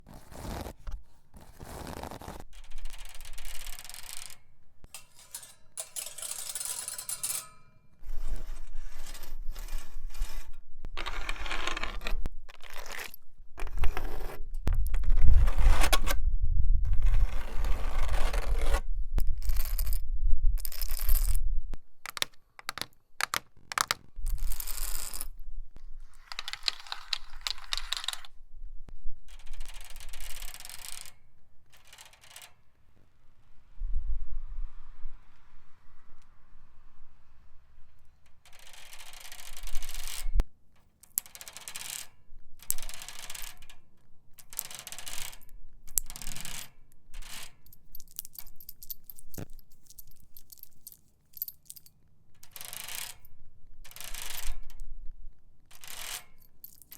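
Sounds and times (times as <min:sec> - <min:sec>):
fingernail tapping and scratching: 0:22.0 - 0:25.2.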